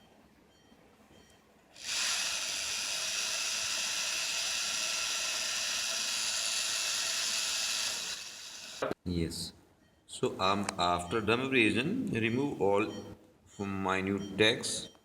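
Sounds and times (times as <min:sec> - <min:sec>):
rotary handpiece whining: 0:01.8 - 0:09.0.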